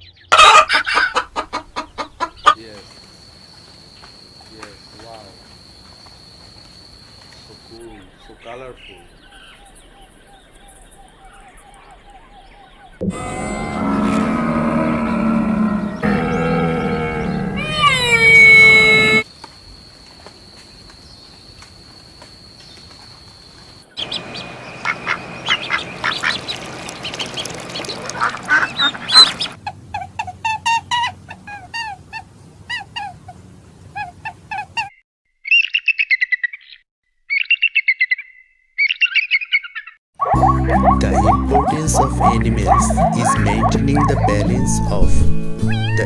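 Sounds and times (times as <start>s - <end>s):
birds chirping: 2.1s - 7.8s, 13.0s - 29.6s, 40.2s - 45.0s
ducks quacking: 13.0s - 19.3s, 22.7s - 29.6s, 40.3s - 44.9s.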